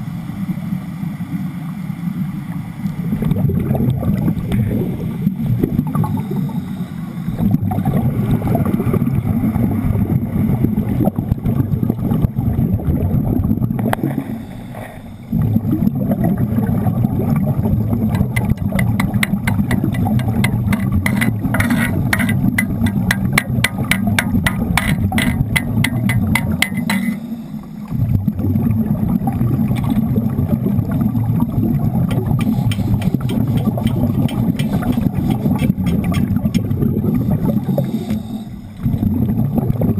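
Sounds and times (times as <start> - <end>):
underwater rush of bubbles: 0.0 - 39.9
fast sharp clicks: 18.1 - 27.1, 32.1 - 36.7.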